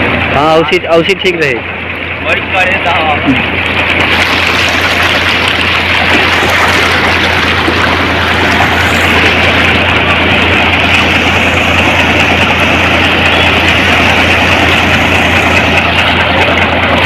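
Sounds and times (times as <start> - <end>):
constant low hum: 0.0 - 17.0
floodwater rushing: 3.4 - 17.0.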